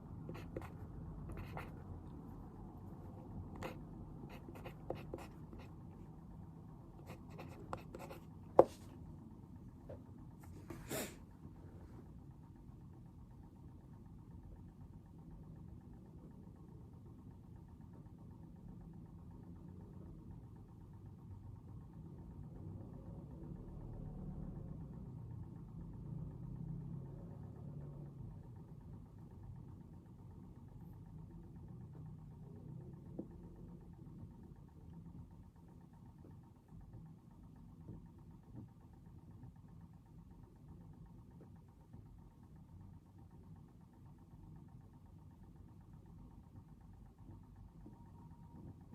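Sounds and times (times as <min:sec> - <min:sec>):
low background rumble: 0:00.0 - 0:10.4.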